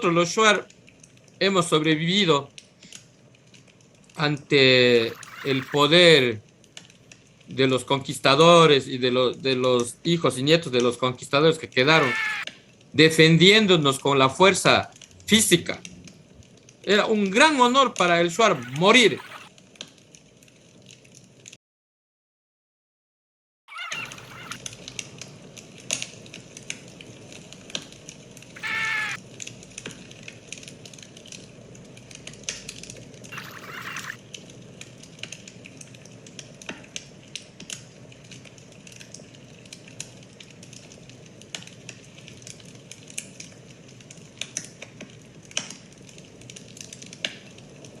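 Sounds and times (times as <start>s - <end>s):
campfire crackling: 0.0s - 21.6s, 23.7s - 48.0s
short pitched call: 5.0s - 5.9s, 11.8s - 12.5s, 18.4s - 19.5s, 23.7s - 24.6s, 28.6s - 29.2s, 33.3s - 34.2s.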